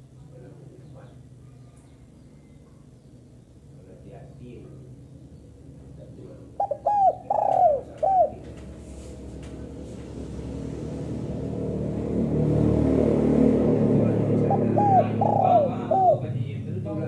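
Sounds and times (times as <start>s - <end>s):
dove cooing: 6.4s - 8.6s, 14.4s - 16.4s.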